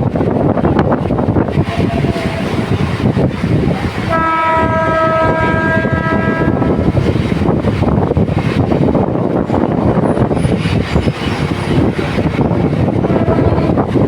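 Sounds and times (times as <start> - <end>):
moving train: 0.0 - 14.0
train horn blast: 4.1 - 6.9, 13.0 - 13.8.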